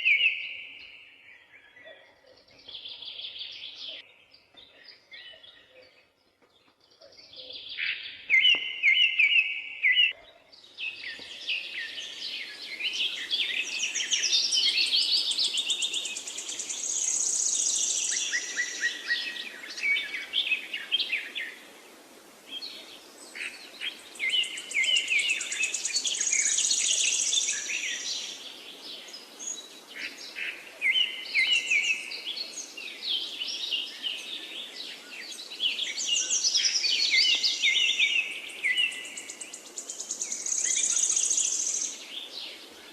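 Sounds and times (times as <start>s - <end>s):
birds chirping and trilling: 0.0s - 42.9s
faint steady hiss: 10.6s - 42.9s.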